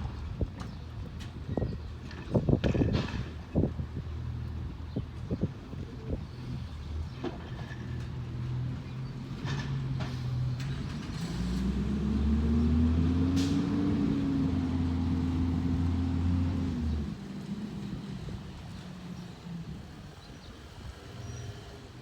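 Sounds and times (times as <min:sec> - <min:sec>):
engine revving with rising whine: 0:11.2 - 0:17.0.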